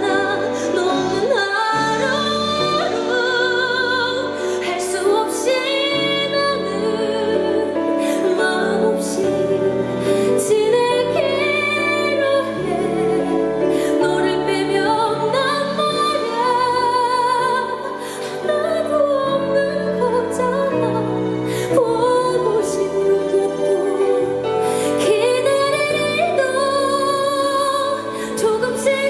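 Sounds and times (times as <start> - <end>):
woman singing with vibrato: 0.0 - 29.0.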